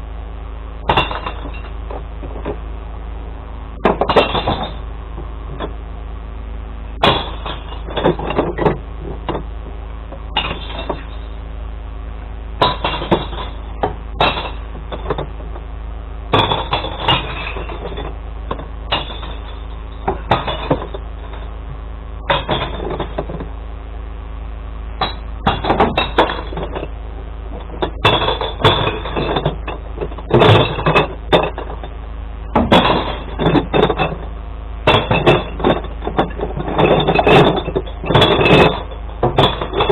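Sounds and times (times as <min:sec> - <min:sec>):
truck engine idling: 0:00.0 - 0:39.9
glass bottles clattering and smashing: 0:00.9 - 0:02.6, 0:03.8 - 0:04.8, 0:07.0 - 0:09.4, 0:10.3 - 0:11.3, 0:12.6 - 0:15.4, 0:16.3 - 0:21.5, 0:22.3 - 0:23.5, 0:25.0 - 0:26.9, 0:27.5 - 0:32.0, 0:32.6 - 0:34.3, 0:34.9 - 0:39.9.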